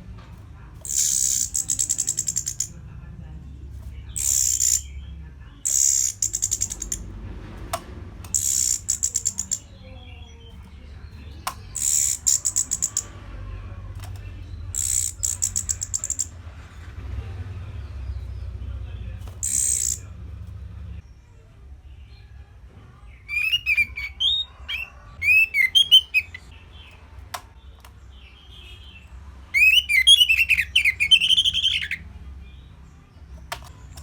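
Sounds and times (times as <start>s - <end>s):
thrush singing: 23.3s - 26.5s, 29.6s - 32.1s.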